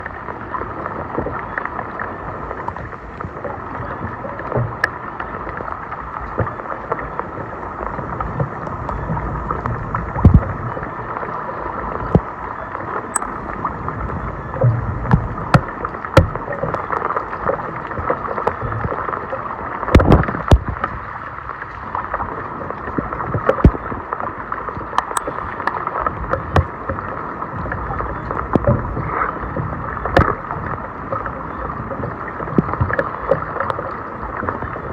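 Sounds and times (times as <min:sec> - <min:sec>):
floodwater gurgling: 0:00.0 - 0:34.9
water splashes: 0:00.0 - 0:34.9.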